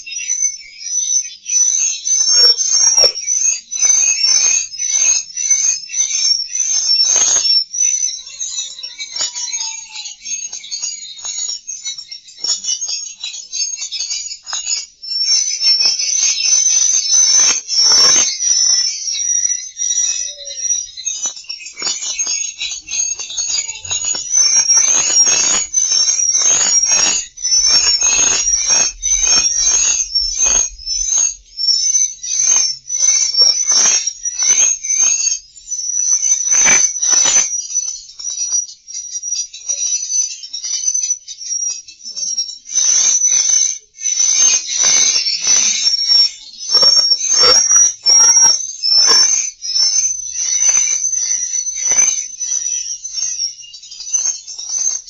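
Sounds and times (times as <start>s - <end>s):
swiftlets twittering: 19.6s - 34.9s
rasping crackly bursts: 21.0s - 31.8s.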